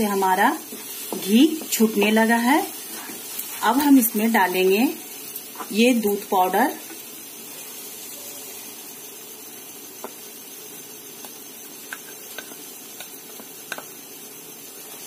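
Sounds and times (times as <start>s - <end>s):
food sizzling softly in oil: 0.0s - 15.0s.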